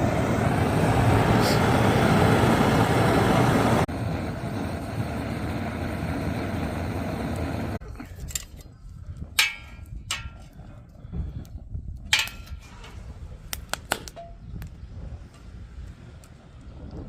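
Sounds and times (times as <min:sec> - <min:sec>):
wood fire low rumble: 0:00.0 - 0:17.0.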